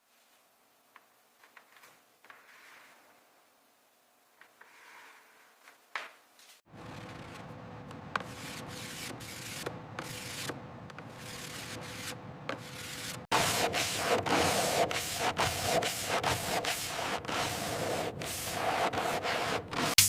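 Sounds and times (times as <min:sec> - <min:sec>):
hand sanding strokes: 0:08.2 - 0:20.0.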